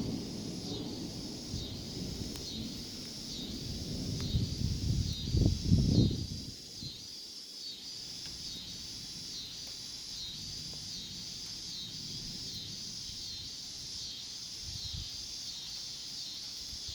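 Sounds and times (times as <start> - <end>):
low rumble of wind: 0.0 - 7.1, 10.3 - 15.4
insect chorus: 0.0 - 16.9.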